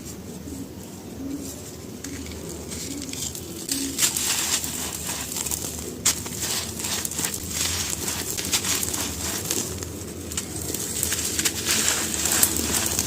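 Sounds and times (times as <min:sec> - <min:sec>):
low cooing: 0:00.5 - 0:04.4
charcoal crunching: 0:01.8 - 0:13.0.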